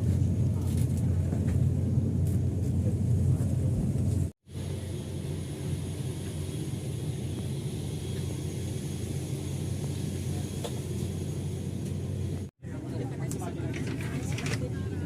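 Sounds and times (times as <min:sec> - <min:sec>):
airplane engines droning: 0:00.0 - 0:15.0.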